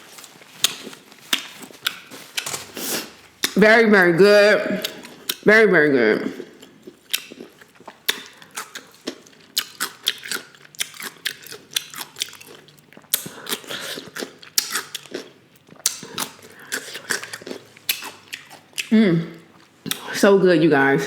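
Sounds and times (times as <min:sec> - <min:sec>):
chewing and biting: 0:00.2 - 0:02.8, 0:06.4 - 0:18.9.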